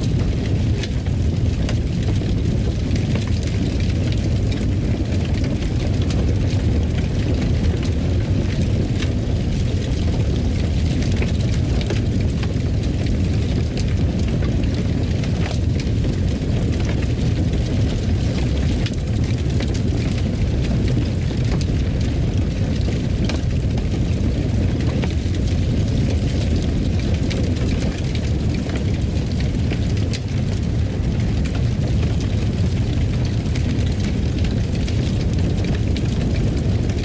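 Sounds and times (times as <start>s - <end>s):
fire crackling and popping: 0.0s - 37.0s.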